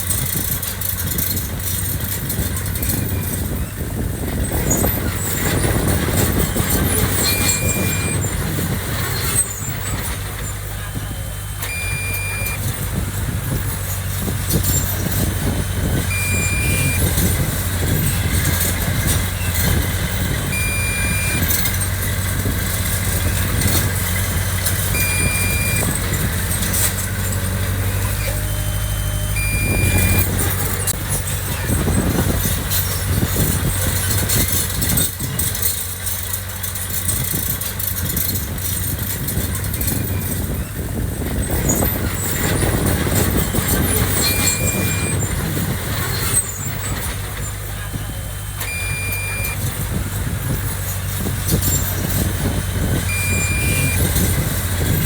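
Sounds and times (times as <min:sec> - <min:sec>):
diesel machinery rumbling: 0:00.0 - 0:55.0
high warning beep: 0:06.4 - 0:08.4, 0:11.1 - 0:12.8, 0:16.1 - 0:17.3, 0:20.4 - 0:21.8, 0:24.9 - 0:26.0, 0:28.1 - 0:30.4, 0:44.2 - 0:45.2, 0:47.8 - 0:49.8, 0:53.1 - 0:54.2.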